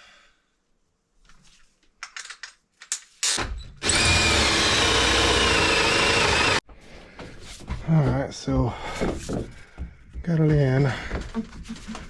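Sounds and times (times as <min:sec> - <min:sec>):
power drill drilling: 0:03.3 - 0:06.6.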